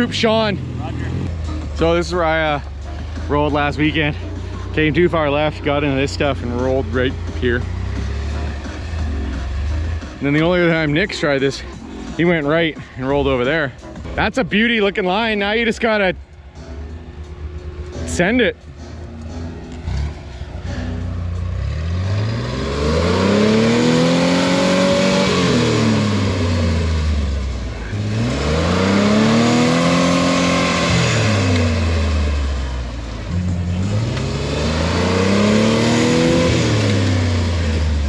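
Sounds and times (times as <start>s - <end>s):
engine revving hard: 19.4s - 38.0s.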